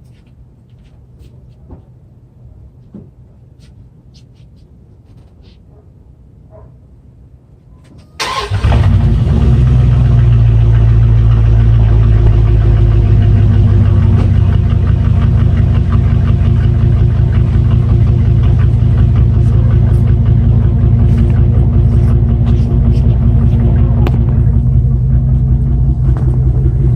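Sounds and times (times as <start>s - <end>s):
car engine starting and idling: 8.2s - 26.9s.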